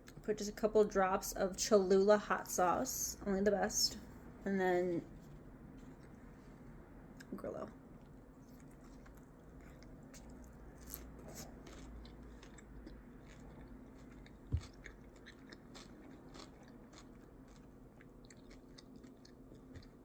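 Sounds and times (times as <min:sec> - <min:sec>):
crunchy chewing: 0:08.0 - 0:20.0.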